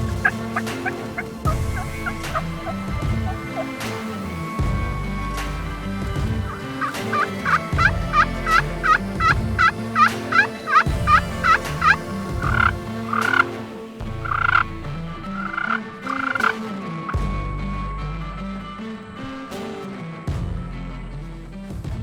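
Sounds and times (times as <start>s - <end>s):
turkey yelping: 0.0s - 3.8s, 6.4s - 13.5s, 14.2s - 14.7s, 15.4s - 17.2s
background music: 0.0s - 22.0s.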